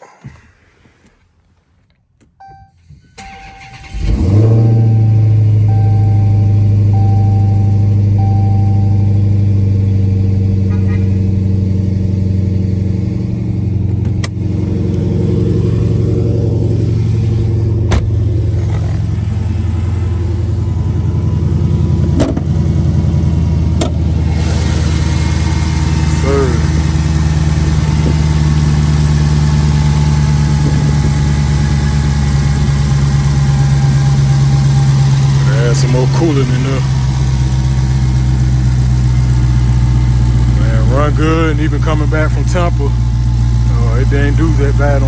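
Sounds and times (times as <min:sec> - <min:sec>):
car engine starting and idling: 0:01.7 - 0:45.0
chime beeps: 0:04.5 - 0:09.2.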